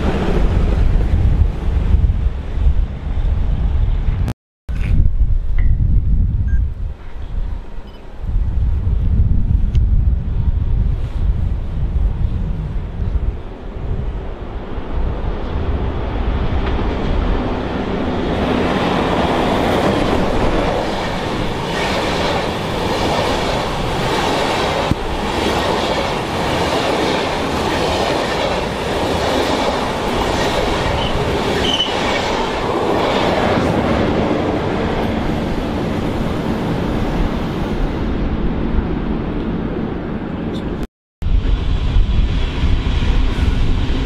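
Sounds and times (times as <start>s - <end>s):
high wheel squeal: 30.9s - 32.2s.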